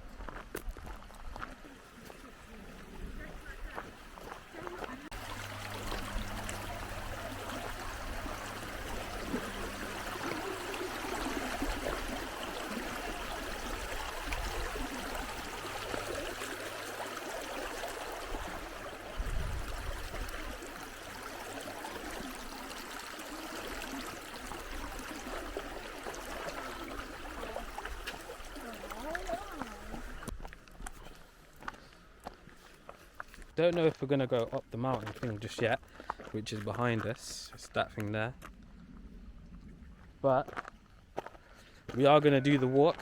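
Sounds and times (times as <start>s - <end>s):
river water rushing: 4.2s - 30.3s.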